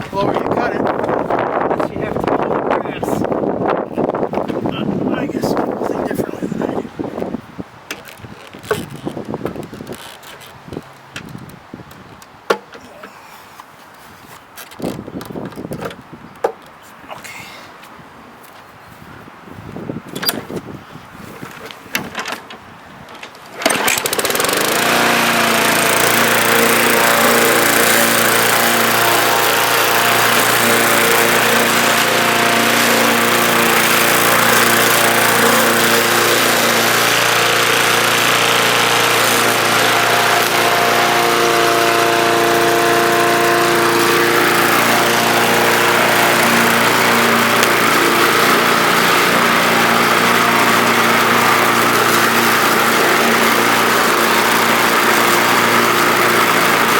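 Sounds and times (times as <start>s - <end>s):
lawn mower engine running: 23.5s - 56.9s.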